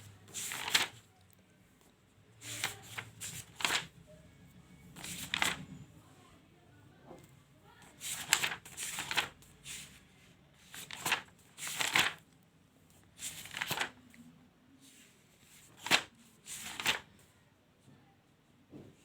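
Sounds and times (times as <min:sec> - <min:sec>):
notebook pages turning: 0:00.3 - 0:01.1, 0:02.4 - 0:04.0, 0:04.9 - 0:05.8, 0:07.9 - 0:10.0, 0:10.6 - 0:12.2, 0:13.2 - 0:14.0, 0:15.6 - 0:17.1.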